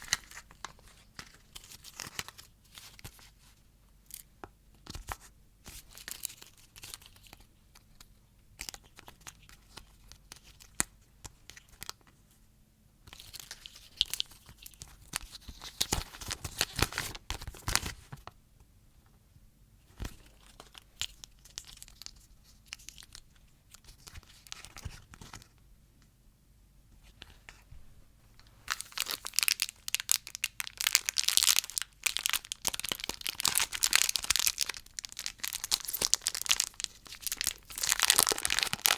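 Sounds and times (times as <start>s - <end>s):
plastic wrappers crumpling: 28.6s - 38.9s.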